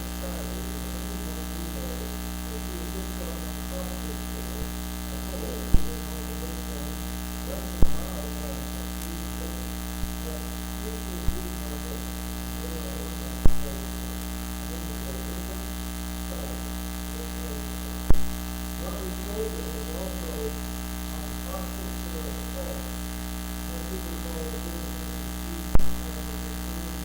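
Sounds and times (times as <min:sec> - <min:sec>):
electrical mains hum and buzz: 0:00.0 - 0:27.0
faint voice: 0:00.0 - 0:27.0
sharp pops: 0:18.1 - 0:18.4.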